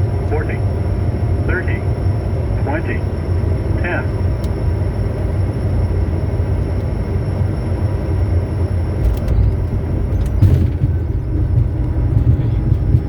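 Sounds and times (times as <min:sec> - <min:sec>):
aircraft cockpit rumble: 0:00.0 - 0:13.0.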